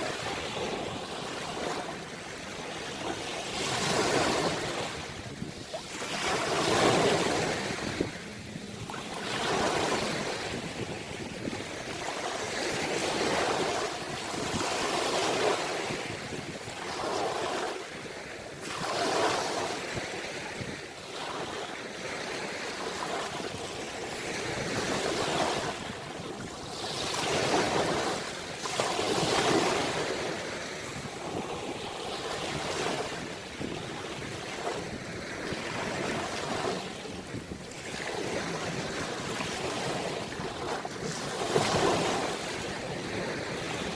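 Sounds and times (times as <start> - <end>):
ocean waves breaking: 0.0 - 43.9
wind on microphone: 0.0 - 43.9.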